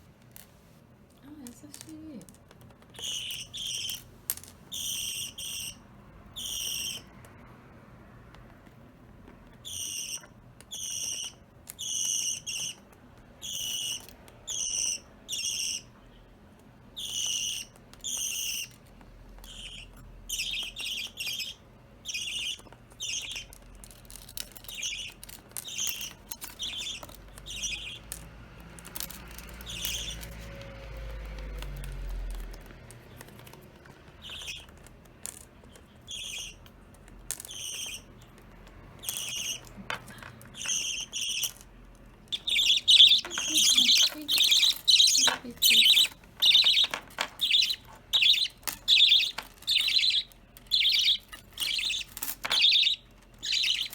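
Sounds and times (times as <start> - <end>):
budgerigars chirping: 3.0 - 4.1, 4.7 - 7.1, 9.6 - 12.8, 13.4 - 15.9, 17.0 - 18.8, 19.5 - 23.6, 24.6 - 28.1, 29.3 - 30.4, 34.2 - 34.7, 35.8 - 36.6, 37.5 - 38.1, 39.0 - 39.8, 40.6 - 41.6, 42.3 - 53.9.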